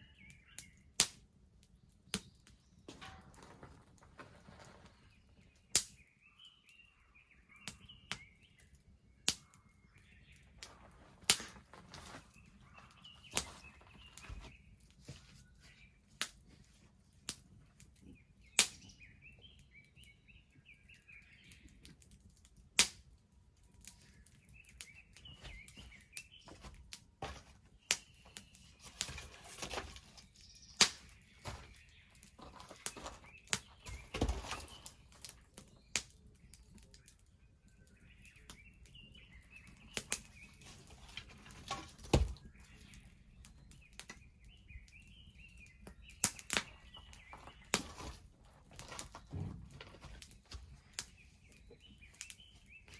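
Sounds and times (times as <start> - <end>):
small birds chirping: 0.0 - 52.9
bonfire crackling and popping: 7.5 - 14.2, 21.2 - 40.7, 42.0 - 49.2.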